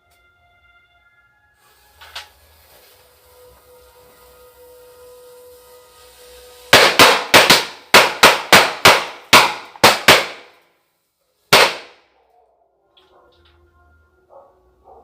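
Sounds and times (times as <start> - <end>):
firecrackers banging: 1.6 - 10.6, 11.5 - 12.0.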